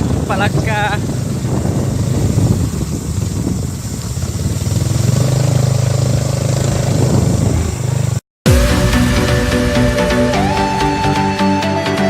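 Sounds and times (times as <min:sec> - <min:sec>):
motorcycle engine running: 0:00.0 - 0:11.4
electronic music: 0:08.5 - 0:12.0.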